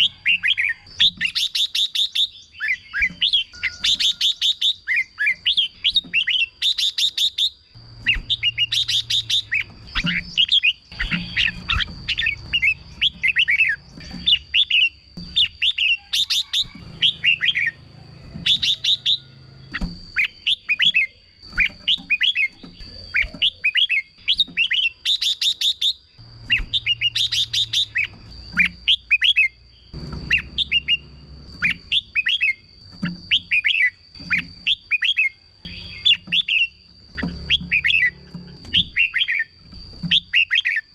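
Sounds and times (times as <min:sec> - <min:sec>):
bird singing whistled phrases: 0:00.0 - 0:17.8, 0:20.2 - 0:29.6.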